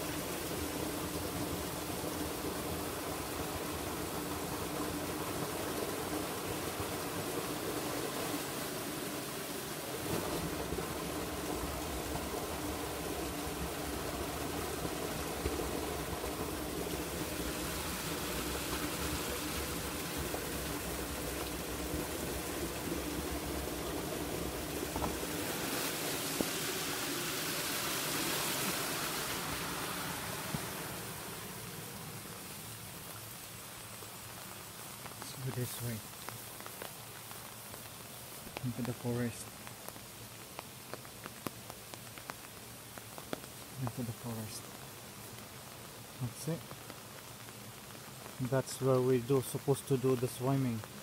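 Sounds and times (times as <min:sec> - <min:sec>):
river water rushing: 0:00.0 - 0:40.5.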